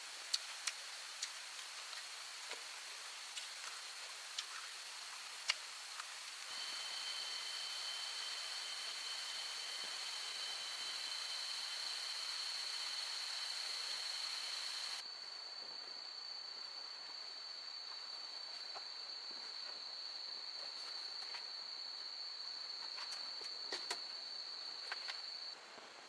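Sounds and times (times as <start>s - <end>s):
insects trilling: 0.0s - 15.0s
background hiss: 0.0s - 26.0s.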